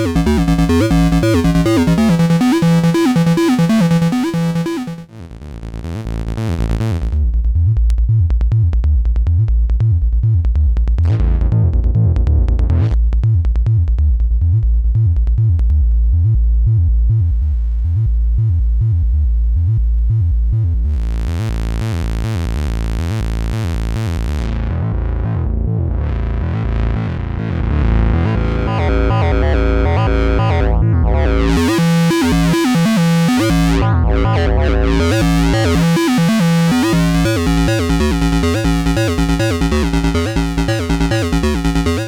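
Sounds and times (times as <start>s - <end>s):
pulsing synthesizer bass sequence: 0.0s - 5.1s, 28.7s - 42.0s.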